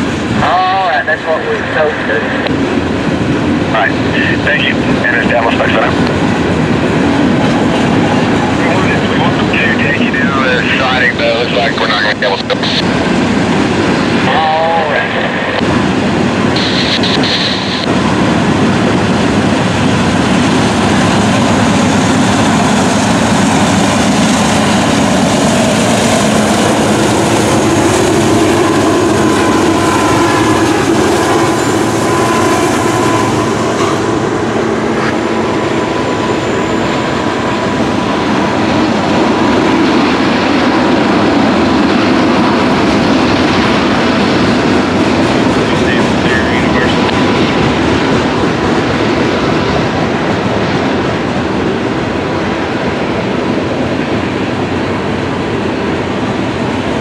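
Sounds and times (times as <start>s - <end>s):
diesel locomotives rumbling: 0.0s - 57.0s.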